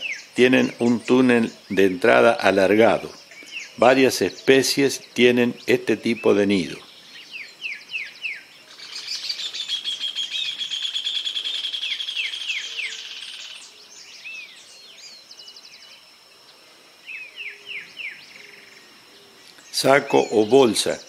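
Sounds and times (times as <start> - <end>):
bird rapid trill: 0.0 - 13.8.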